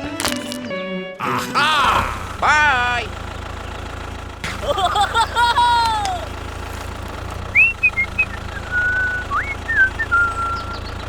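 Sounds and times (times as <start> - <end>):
whistling gliding notes: 7.4 - 11.0.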